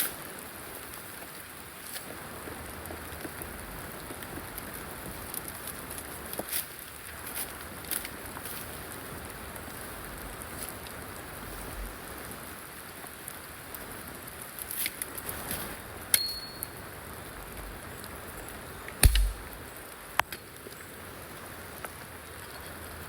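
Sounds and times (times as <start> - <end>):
rain patter: 0.0 - 23.0
gear knocking and clicking: 19.0 - 19.4
metallic ping: 19.0 - 19.4
heavy thud: 19.0 - 19.5.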